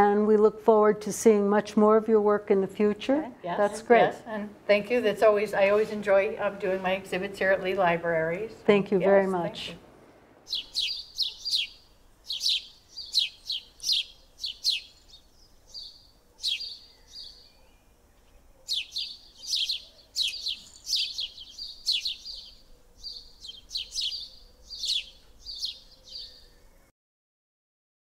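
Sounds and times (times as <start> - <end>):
small songbird chirping: 10.5 - 26.9.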